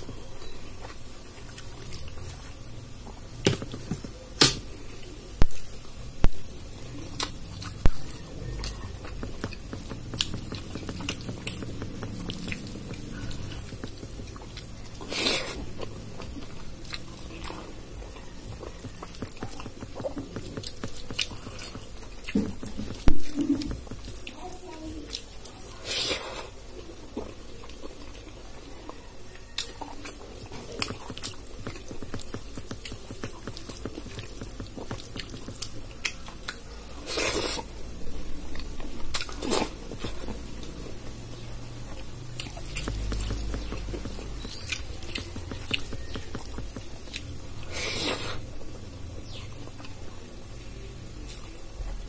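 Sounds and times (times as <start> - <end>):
person chewing food: 0.0 - 50.2
wet mouth clicks: 42.3 - 47.3.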